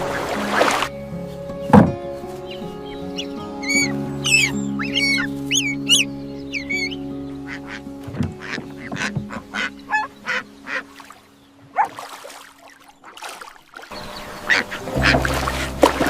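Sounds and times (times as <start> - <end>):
background music with low bass: 0.0 - 11.8, 13.9 - 16.0
waterfowl quacks and honks: 3.2 - 16.0.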